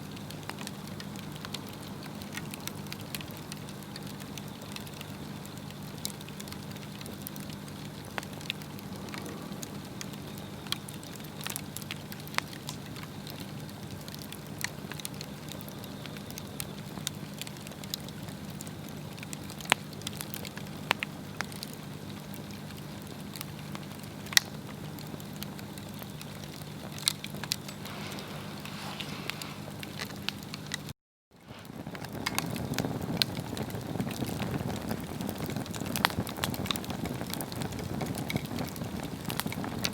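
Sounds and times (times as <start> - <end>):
steady low hum: 0.0 - 16.7, 24.9 - 30.9
wood fire crackling and popping: 0.0 - 39.9
rumbling noise: 7.4 - 12.0.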